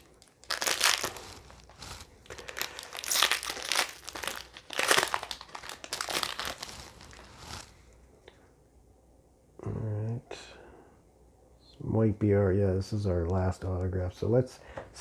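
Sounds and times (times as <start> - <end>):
plastic crinkling: 0.0 - 7.8.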